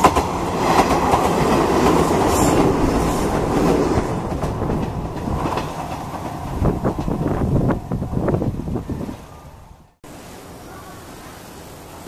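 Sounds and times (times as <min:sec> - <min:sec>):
wheels clattering over rail joints: 0:00.0 - 0:08.6
electric train running past: 0:00.0 - 0:12.0.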